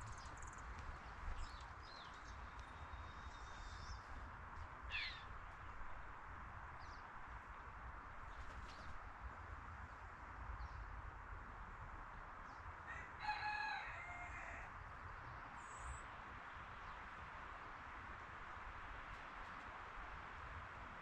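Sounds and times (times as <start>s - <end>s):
rooster crowing: 12.9s - 14.8s.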